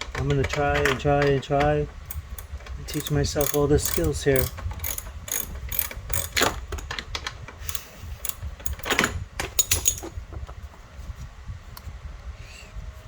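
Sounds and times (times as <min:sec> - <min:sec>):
hand tools clinking: 0:02.1 - 0:06.9, 0:07.7 - 0:10.1.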